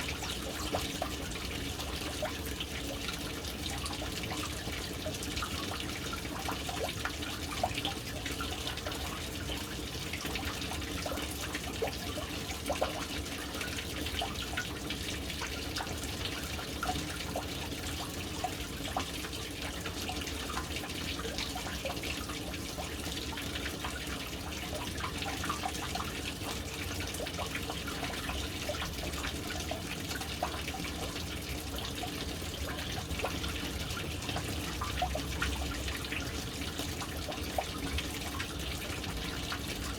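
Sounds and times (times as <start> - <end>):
water drips and plops: 0.0 - 39.9
water pouring into tank: 0.0 - 39.9.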